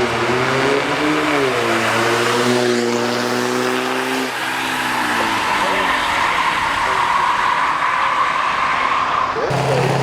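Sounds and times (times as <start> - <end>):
racing engine revving hard: 9.5 - 10.0.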